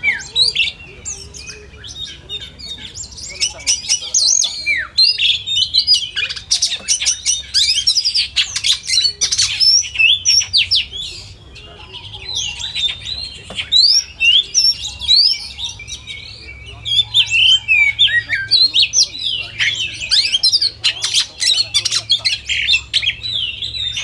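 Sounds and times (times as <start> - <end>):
songbirds whistling and chattering: 0.0 - 24.0.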